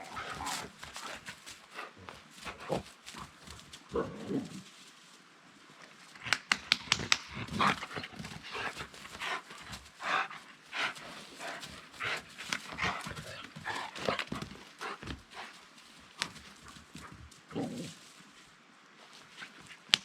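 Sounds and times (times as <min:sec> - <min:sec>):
dog claws clicking: 0:06.3 - 0:07.4.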